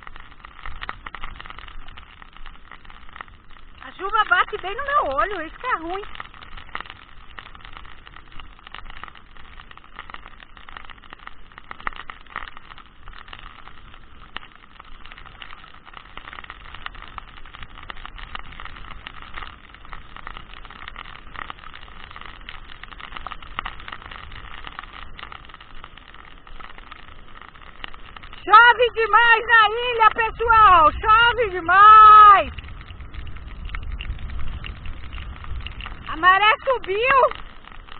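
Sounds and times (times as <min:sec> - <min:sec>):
heavy rain: 0:00.0 - 0:37.9
raindrops clicking on camera: 0:00.0 - 0:37.9
wind rushing over microphone: 0:27.4 - 0:37.9.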